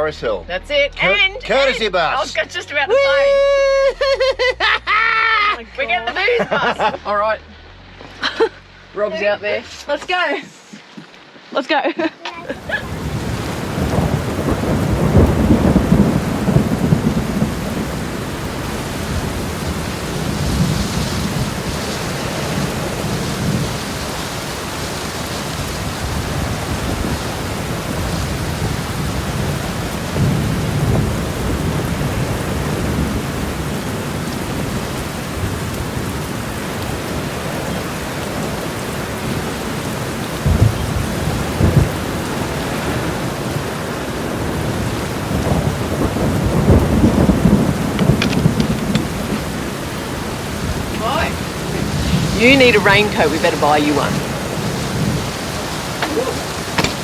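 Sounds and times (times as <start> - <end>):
heavy rain pouring: 0.0 - 57.0
deep rumbles: 40.4 - 42.5, 44.4 - 57.0.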